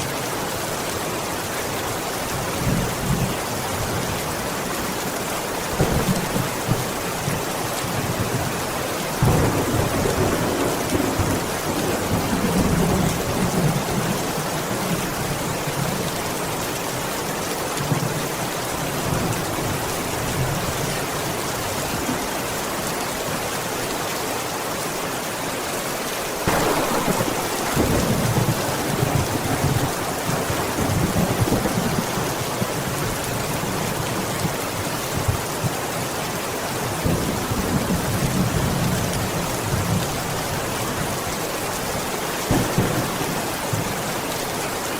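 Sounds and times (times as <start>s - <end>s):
steady rainfall: 0.0s - 44.9s
thunder rumbling: 9.2s - 14.2s, 26.5s - 33.8s, 42.5s - 44.4s.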